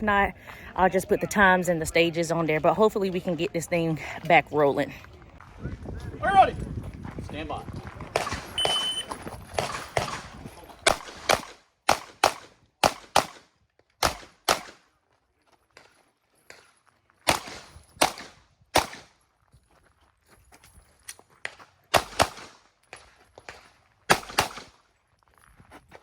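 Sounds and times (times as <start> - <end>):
pistol shots in pairs: 8.2 - 8.8, 9.6 - 14.9, 17.3 - 19.2, 21.9 - 22.6, 23.5 - 24.8
shot timer beep: 8.6 - 9.1.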